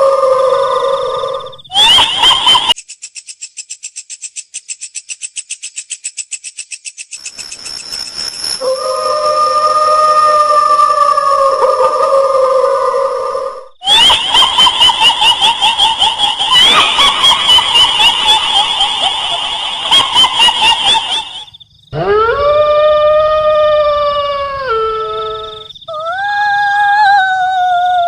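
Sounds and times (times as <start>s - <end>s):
long high wail: 0.0s - 2.4s, 8.6s - 28.0s
shrill cackling laughter: 1.7s - 2.8s, 13.8s - 22.6s.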